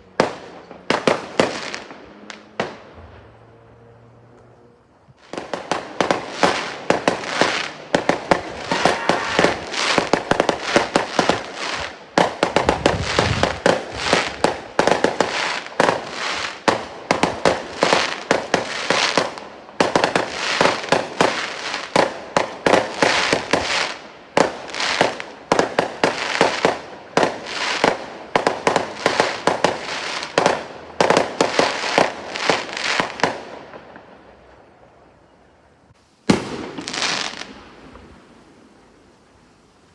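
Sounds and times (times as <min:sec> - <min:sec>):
fireworks bangs and crackles: 0:00.0 - 0:03.6, 0:05.1 - 0:34.8, 0:36.2 - 0:38.8.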